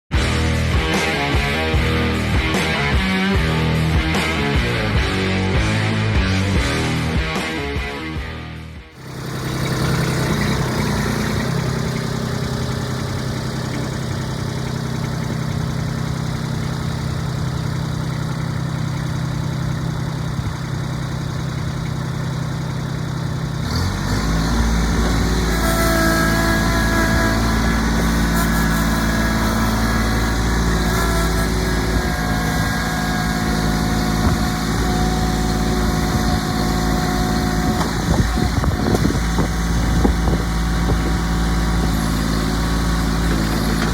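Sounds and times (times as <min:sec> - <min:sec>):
diesel tractor engine: 0:00.0 - 0:43.9
thin whine: 0:24.3 - 0:43.9.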